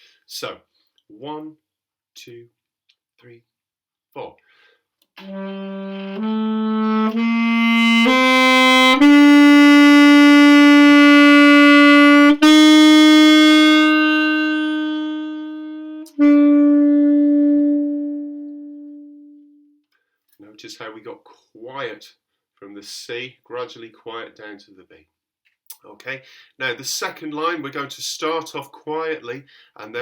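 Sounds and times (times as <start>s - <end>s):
saxophone playing slow phrase: 5.2s - 19.7s.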